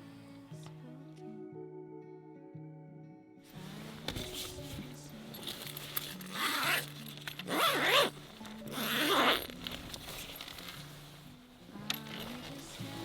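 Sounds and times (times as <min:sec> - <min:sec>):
soft background music: 0:00.0 - 0:13.0
zipper being pulled: 0:05.4 - 0:10.8.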